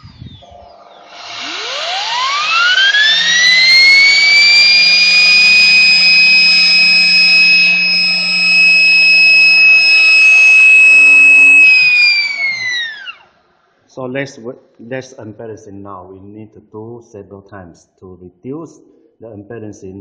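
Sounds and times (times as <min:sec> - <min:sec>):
turbine rotor whine: 0:00.0 - 0:13.3.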